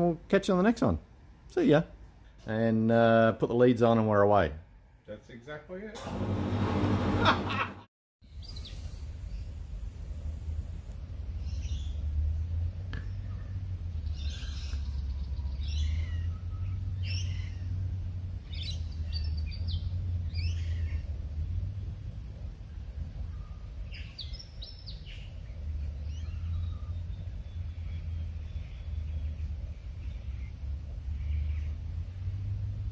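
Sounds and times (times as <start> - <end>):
wild birds calling: 11.4 - 22.0, 23.4 - 32.3.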